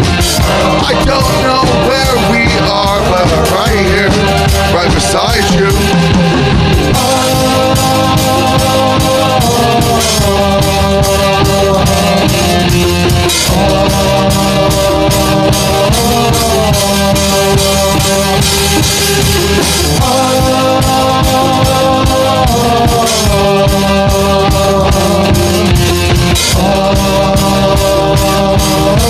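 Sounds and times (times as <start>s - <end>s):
sliding melody line: 0.0s - 22.0s
drum kit beat: 0.0s - 29.0s
rock band playing: 0.0s - 29.0s.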